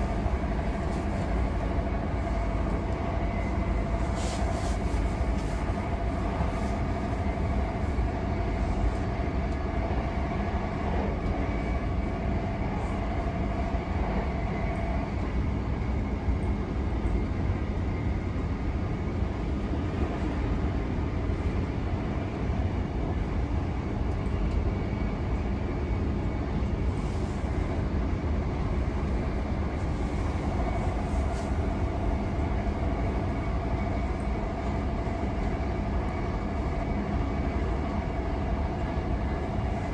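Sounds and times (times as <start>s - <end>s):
steady whine: 0.0s - 18.5s
train wheels rumbling on rail: 0.0s - 39.9s.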